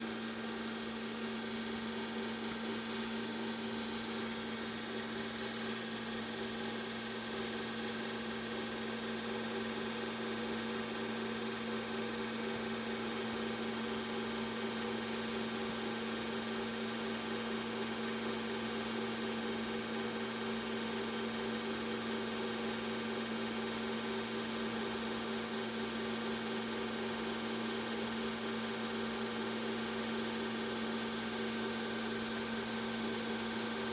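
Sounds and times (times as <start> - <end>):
low machine hum: 0.0 - 21.9.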